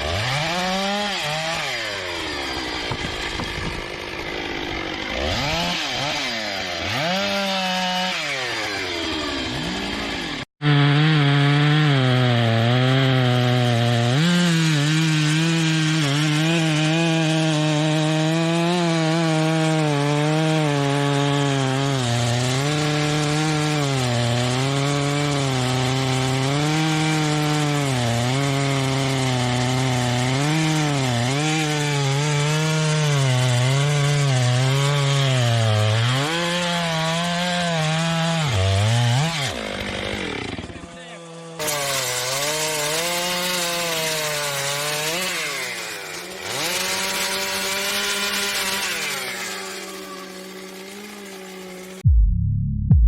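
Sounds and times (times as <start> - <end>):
chainsaw cutting wood: 0.0 - 52.1.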